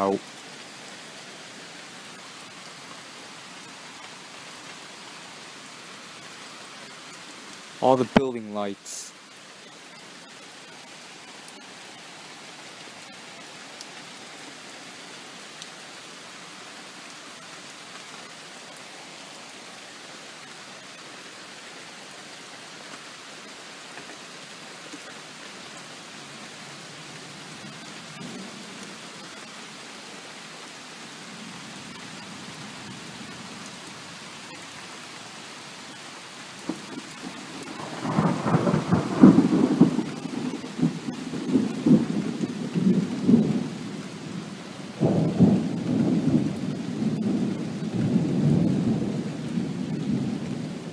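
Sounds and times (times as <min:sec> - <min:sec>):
steady rain falling: 0:00.0 - 0:50.9
distant thunder rumbling: 0:36.6 - 0:50.7.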